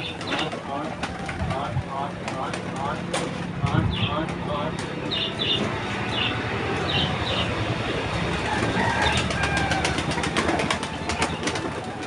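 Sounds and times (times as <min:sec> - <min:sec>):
pigeons pecking taps and rustling: 0:00.0 - 0:05.2
bird chirps: 0:05.0 - 0:07.6.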